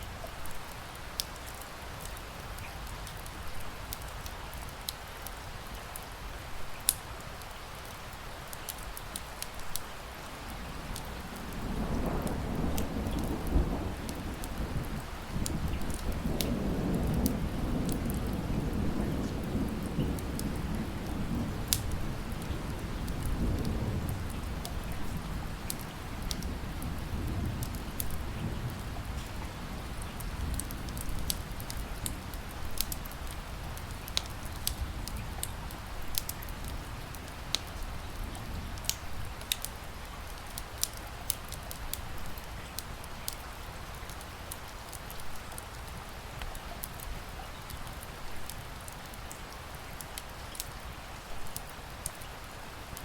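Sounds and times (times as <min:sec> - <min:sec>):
steady rain: 0:00.0 - 0:53.0
low rumble of thunder: 0:10.4 - 0:40.9
wood fire crackling and popping: 0:19.4 - 0:28.5, 0:30.0 - 0:37.8, 0:38.8 - 0:43.4, 0:51.3 - 0:52.2.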